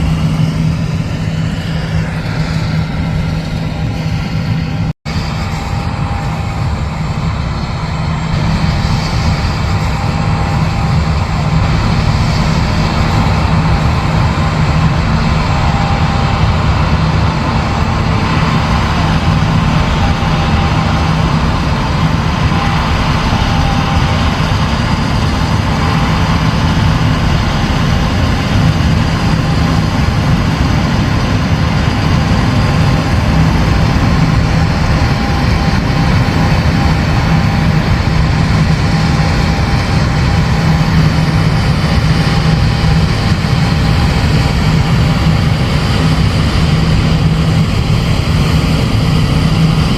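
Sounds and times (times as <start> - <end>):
diesel engine low drone: 0.0 - 49.9
faint steady whine: 0.0 - 49.9.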